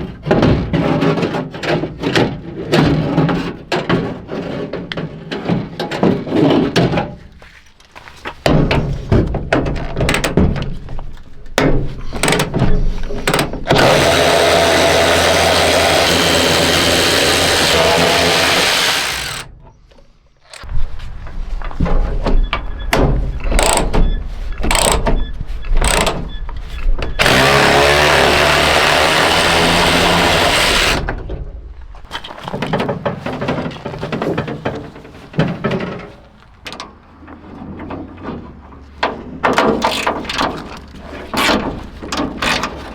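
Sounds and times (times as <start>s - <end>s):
clanks of tools and metal parts: 0.0s - 14.1s, 19.4s - 27.3s, 31.0s - 42.9s
power tool running: 13.7s - 19.5s, 27.2s - 31.0s.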